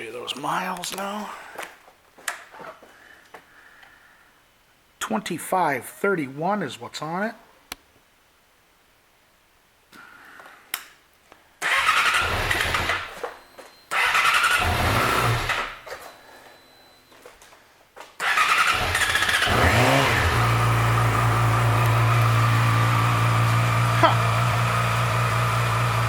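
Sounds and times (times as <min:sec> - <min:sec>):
motorcycle engine starting and idling: 0:11.6 - 0:13.2, 0:13.9 - 0:15.8, 0:18.2 - 0:26.0.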